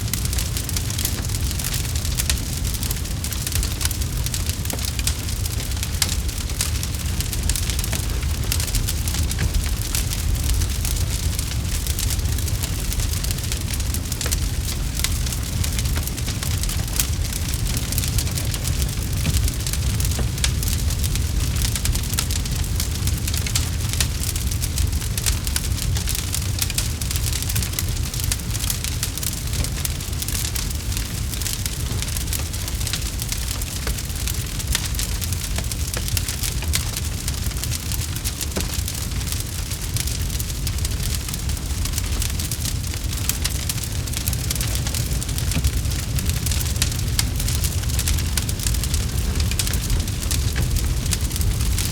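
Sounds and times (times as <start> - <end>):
campfire crackling and popping: 0.0 - 51.9.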